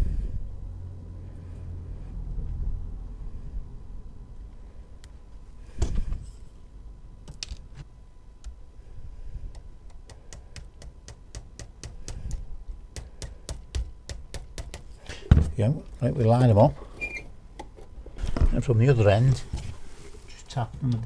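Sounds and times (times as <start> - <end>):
small hammer tapping metal: 9.5 - 12.4, 13.0 - 14.9.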